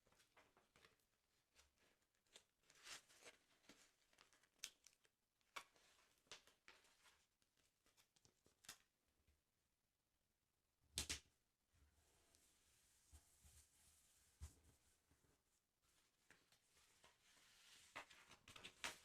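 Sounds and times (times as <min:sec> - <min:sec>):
paper rustling and crinkling: 0:16.3 - 0:19.0.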